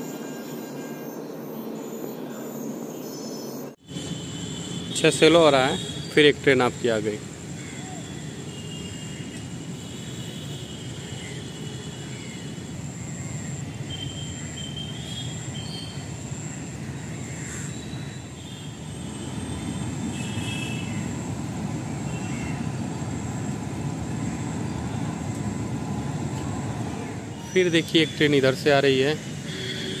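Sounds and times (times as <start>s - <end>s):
train rumbling across bridge: 19.0s - 29.5s.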